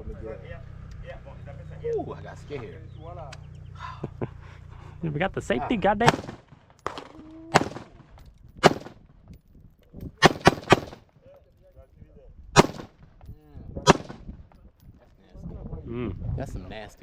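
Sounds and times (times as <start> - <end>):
gunshots: 6.0 - 9.0, 10.2 - 11.1, 12.6 - 13.0, 13.8 - 14.3.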